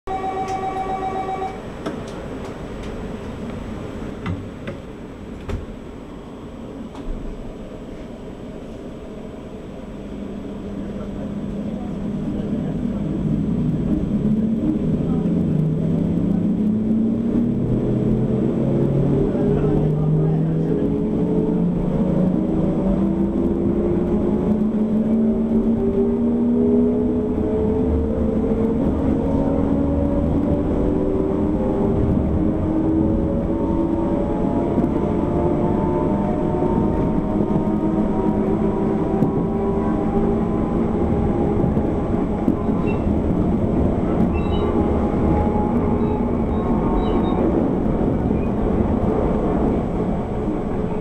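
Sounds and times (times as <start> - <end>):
train motor tones rising: 0.1 - 1.6
wheels rumbling on rails: 0.1 - 51.0
faint high squeaks: 42.8 - 43.1, 44.3 - 44.8, 46.0 - 47.5.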